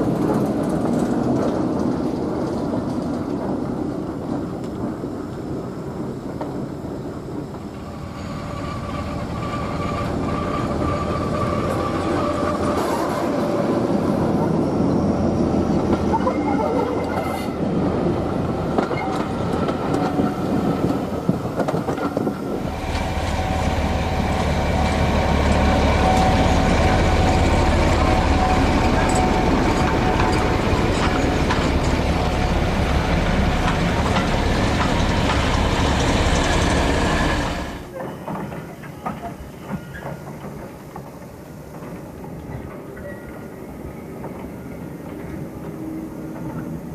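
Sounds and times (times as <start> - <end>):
wheels clicking over rail joints: 0.0 - 7.8, 15.6 - 46.9
diesel locomotive engine rumble: 0.0 - 46.9.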